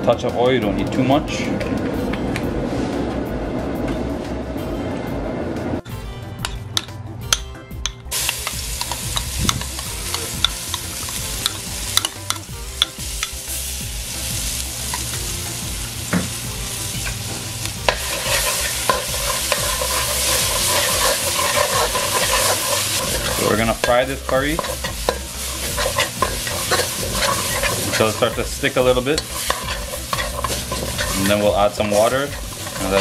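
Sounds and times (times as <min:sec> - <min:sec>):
paste sizzling in hot oil: 0:08.1 - 0:33.0
metal spoon scraping pot: 0:17.9 - 0:33.0.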